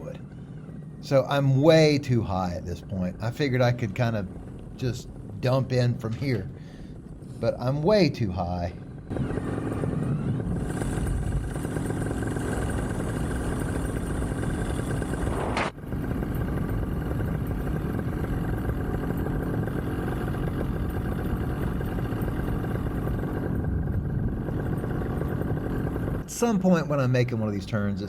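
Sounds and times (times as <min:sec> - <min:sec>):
paramotor engine idling: 0:03.6 - 0:08.1, 0:08.7 - 0:26.6.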